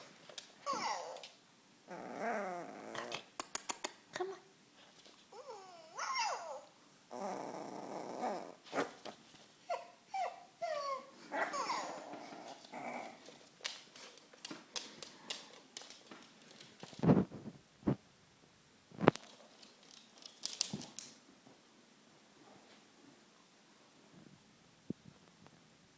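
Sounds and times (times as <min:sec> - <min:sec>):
puppy growling: 0:00.6 - 0:01.3, 0:01.9 - 0:03.4, 0:05.3 - 0:09.1, 0:10.2 - 0:13.4
puppy yips and whimpers: 0:00.6 - 0:01.3, 0:05.3 - 0:06.7, 0:09.7 - 0:12.0.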